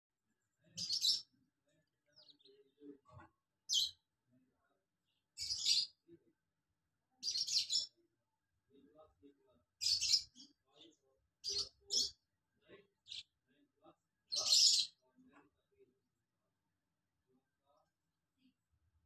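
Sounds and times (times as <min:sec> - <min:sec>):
birds chirping: 0:00.6 - 0:04.1, 0:05.0 - 0:06.2, 0:07.1 - 0:08.0, 0:08.7 - 0:13.6, 0:14.2 - 0:15.6.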